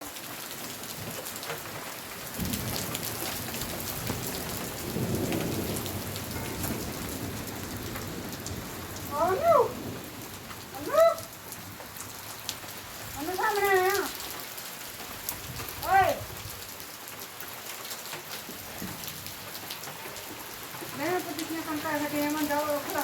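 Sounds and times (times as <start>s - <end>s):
rain pattering: 0.0s - 23.0s
thunder rumbles: 2.2s - 14.3s
animal call: 10.8s - 11.3s.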